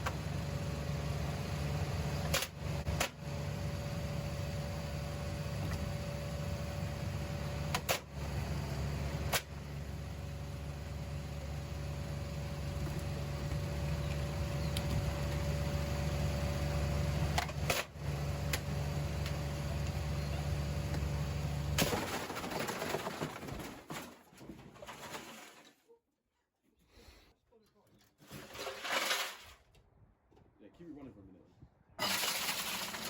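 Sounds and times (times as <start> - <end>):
washing machine motor hum: 0.0 - 21.8.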